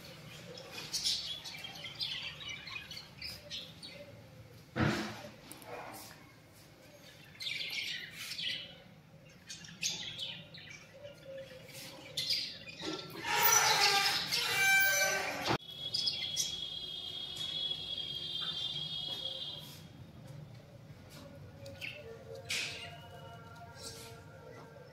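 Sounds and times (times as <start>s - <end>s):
birds chirping and calling: 0.0s - 6.2s, 6.8s - 19.8s, 20.8s - 24.9s.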